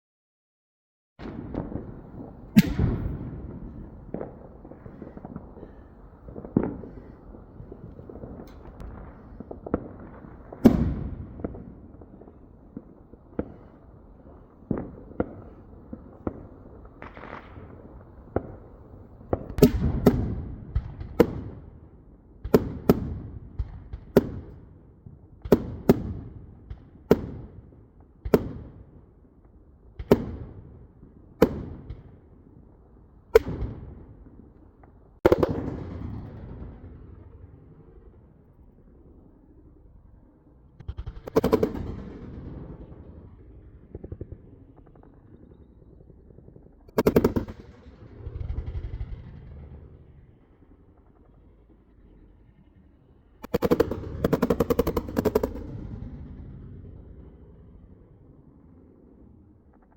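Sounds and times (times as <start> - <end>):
fireworks bangs: 1.2 - 29.0, 33.3 - 39.9, 40.7 - 51.4.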